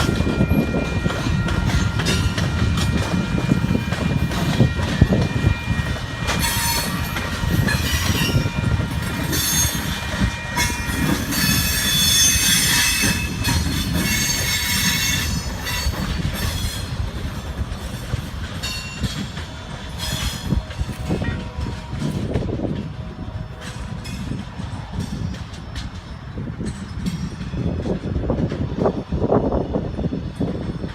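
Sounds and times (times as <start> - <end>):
steel wheels squealing: 0.0 - 22.6
train wheels rumbling on rail: 0.0 - 30.9.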